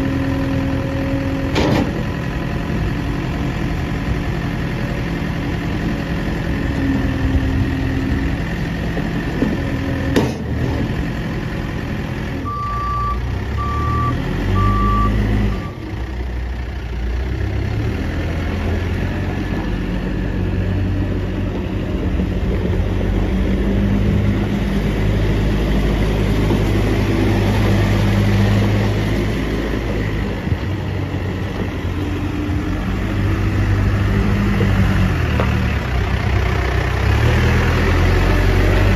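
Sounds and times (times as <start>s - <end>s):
diesel engine running: 0.0s - 38.9s
reverse alarm beeps: 12.5s - 15.8s.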